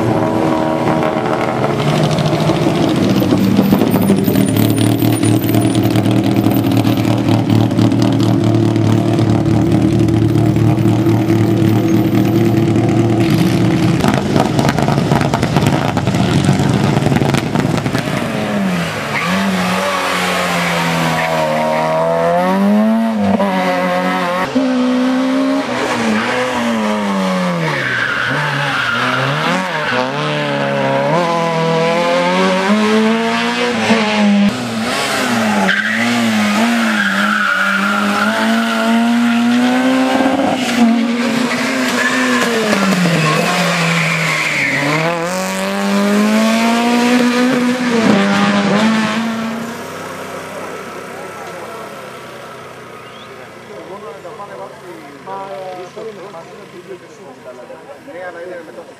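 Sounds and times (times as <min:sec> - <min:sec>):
rally car engine revving: 0:00.0 - 0:58.0
tyres squealing: 0:40.8 - 0:45.2.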